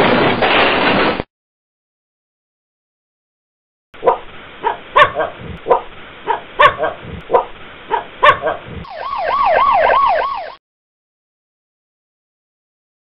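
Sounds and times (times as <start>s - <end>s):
dog barking: 4.0s - 8.8s
emergency siren wailing: 8.8s - 10.6s.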